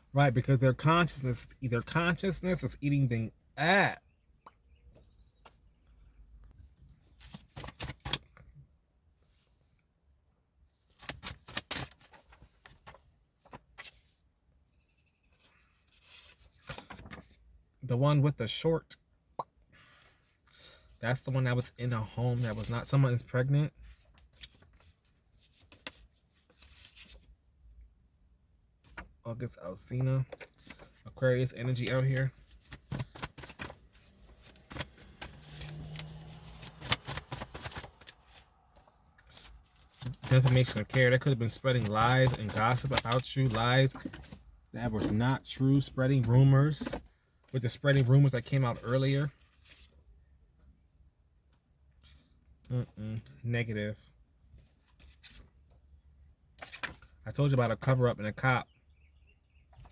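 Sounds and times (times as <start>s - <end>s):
deck of cards shuffling: 31.6s - 45.2s.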